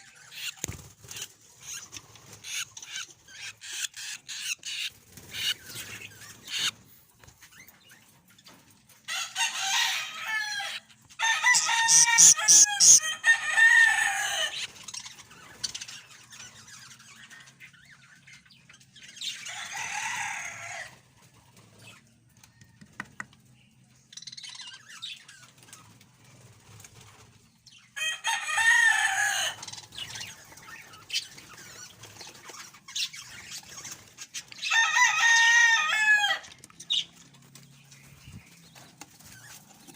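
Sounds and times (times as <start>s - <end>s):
budgerigar chicks chirping: 0.0s - 8.1s, 10.6s - 13.5s.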